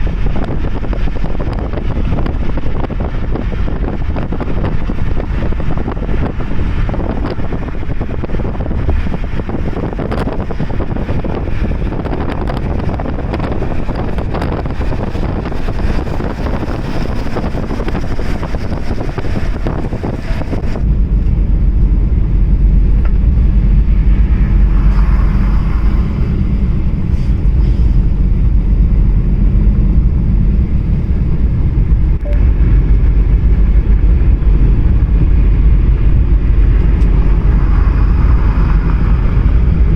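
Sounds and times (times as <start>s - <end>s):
car road and wind noise: 0.0s - 39.9s
heavy low rumble: 0.0s - 39.9s.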